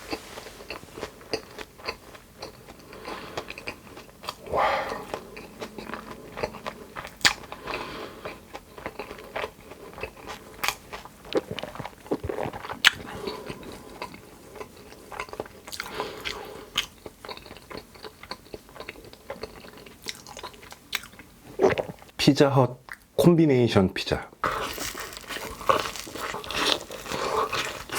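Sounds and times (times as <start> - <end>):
wet mouth sounds: 0.0 - 9.1, 9.8 - 16.0
person chewing crunchy food: 0.0 - 22.0, 24.4 - 27.9.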